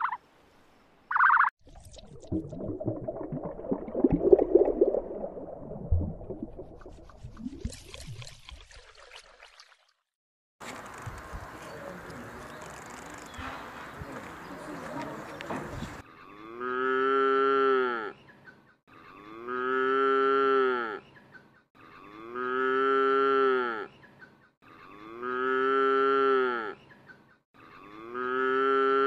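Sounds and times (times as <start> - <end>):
cow mooing: 16.2 - 18.2, 18.9 - 21.0, 21.8 - 23.9, 24.7 - 26.8, 27.6 - 29.0.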